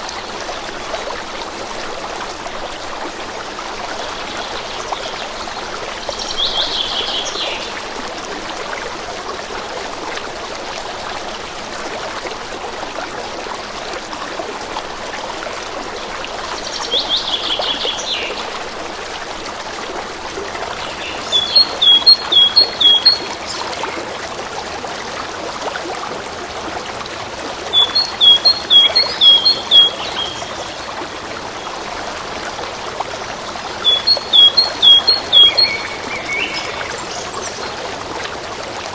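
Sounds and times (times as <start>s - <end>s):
stream trickling: 0.0s - 38.9s
bird singing: 20.9s - 23.9s, 27.7s - 30.8s, 33.8s - 37.8s.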